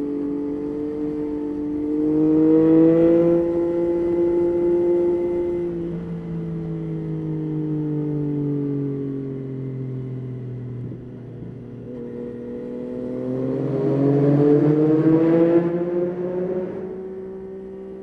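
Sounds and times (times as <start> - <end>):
motorcycle engine accelerating: 0.0 - 7.0, 10.7 - 18.0.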